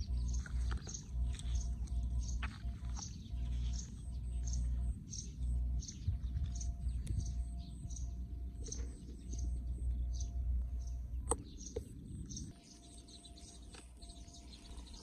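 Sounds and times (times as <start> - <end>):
bird chirping: 0.0 - 15.0
wind on microphone: 5.8 - 8.9.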